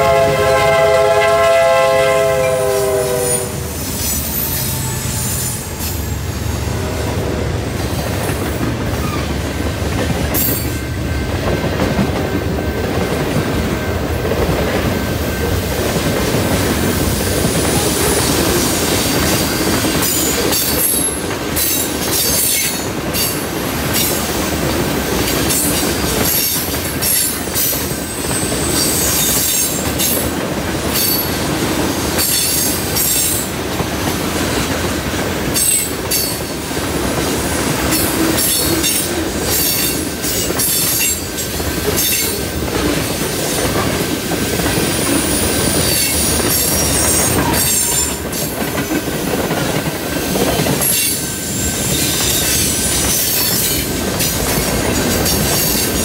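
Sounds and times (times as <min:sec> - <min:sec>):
freight train wheels rumbling: 0:00.0 - 0:56.0
train wheel clacks: 0:02.1 - 0:56.0
wheel-flange squeal: 0:03.8 - 0:06.5, 0:07.6 - 0:09.4, 0:25.5 - 0:30.1, 0:44.8 - 0:48.5, 0:50.6 - 0:53.9.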